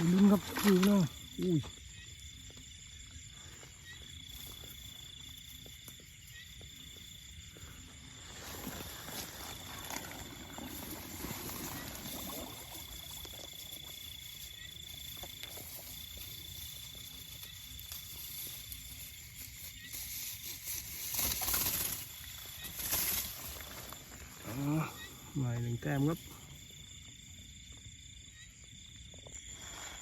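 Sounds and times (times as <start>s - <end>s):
high-pitched insect trill: 0.0s - 30.0s
rustling: 14.8s - 24.6s.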